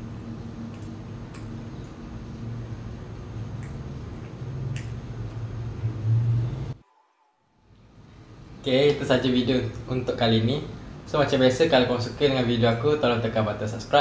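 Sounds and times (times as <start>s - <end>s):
low hum: 0.0s - 9.9s
chewing and mouth sounds: 3.5s - 5.5s.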